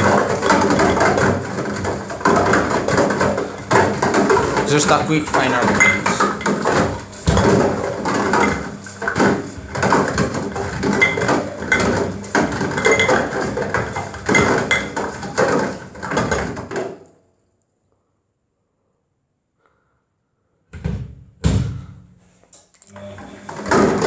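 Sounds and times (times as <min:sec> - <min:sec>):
cardboard canister clattering in drum: 0:00.0 - 0:17.0
washing machine drum turning: 0:00.0 - 0:17.0, 0:22.9 - 0:24.0.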